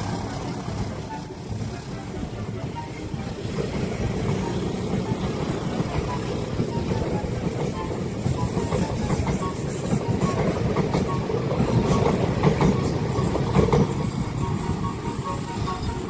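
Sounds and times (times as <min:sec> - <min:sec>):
train rumbling past: 0:00.0 - 0:16.0
wheels clacking over rail joints: 0:00.0 - 0:16.0.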